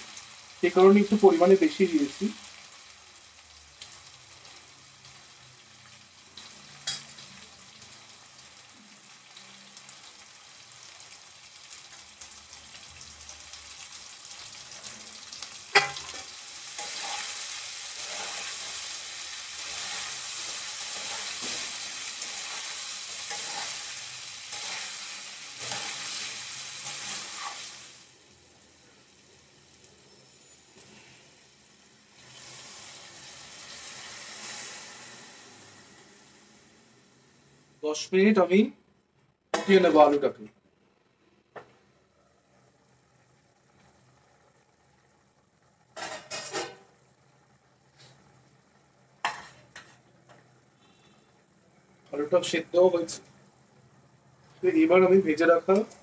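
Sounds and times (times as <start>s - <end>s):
vegetables sizzling in oil: 0.0s - 37.9s, 42.0s - 51.2s, 52.0s - 56.0s
spatula scraping and stirring: 15.7s - 27.8s.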